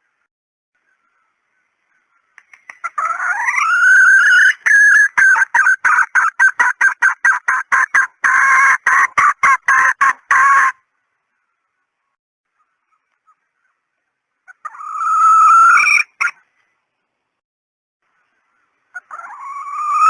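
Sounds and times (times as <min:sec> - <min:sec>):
junglefowl hen calling: 0:00.8 - 0:11.9, 0:12.5 - 0:16.8, 0:18.1 - 0:20.0
rapid repeated clucks: 0:02.0 - 0:03.4, 0:04.5 - 0:10.8.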